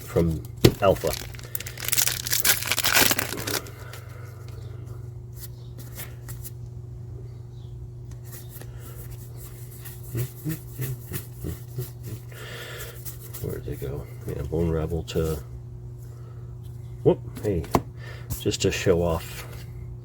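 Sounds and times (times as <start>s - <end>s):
low electrical hum: 0.0s - 20.0s
trading cards rustling: 0.7s - 4.0s.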